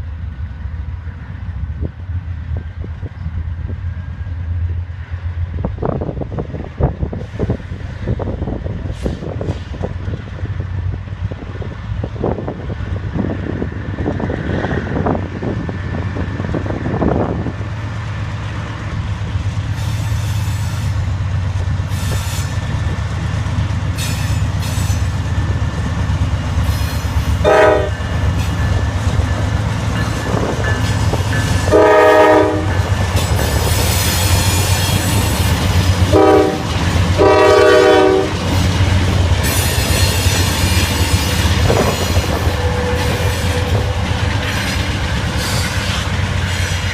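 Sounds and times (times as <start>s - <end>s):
diesel locomotive engine rumble: 0.0s - 46.9s
wheel and rail squeal: 19.7s - 21.2s, 21.8s - 22.8s, 23.9s - 25.4s, 26.6s - 27.4s, 32.8s - 36.0s, 38.5s - 46.9s
train air horn: 26.7s - 28.1s, 31.6s - 32.9s, 36.1s - 38.5s, 41.7s - 44.1s.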